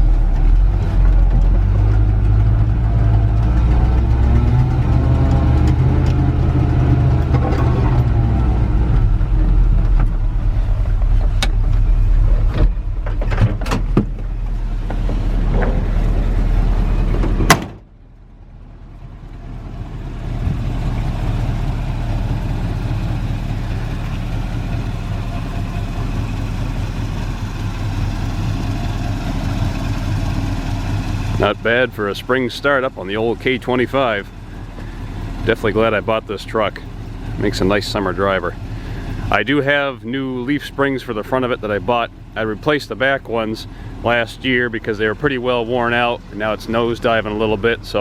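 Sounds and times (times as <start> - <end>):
pickup truck engine running: 0.0 - 48.0
sharp bang: 17.4 - 17.9.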